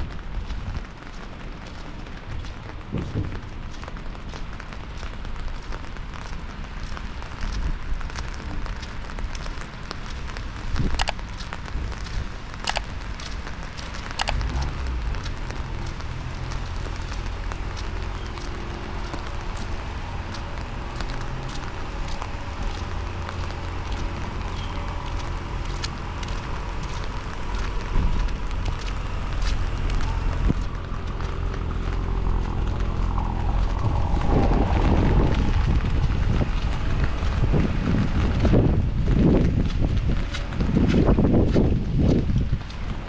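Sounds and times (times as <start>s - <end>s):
rain pattering: 0.0s - 43.0s
low rumble: 19.6s - 42.7s.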